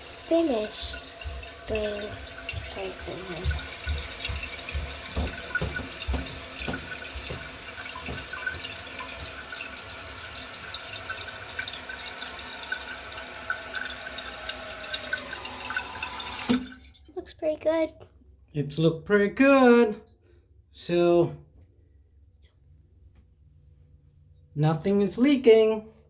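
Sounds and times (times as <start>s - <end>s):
faucet water running into sink: 0.0s - 17.1s
hands splashing water: 0.7s - 16.9s
soft knocks: 1.1s - 9.9s.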